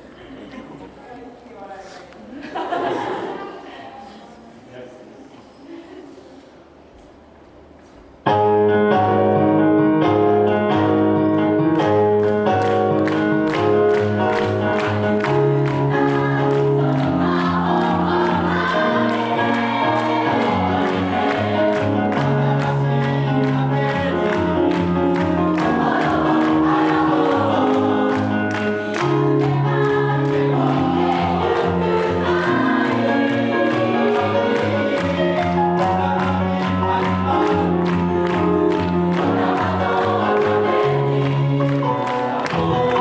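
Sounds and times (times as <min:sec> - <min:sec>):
choir singing in unison: 0:14.0 - 0:43.0.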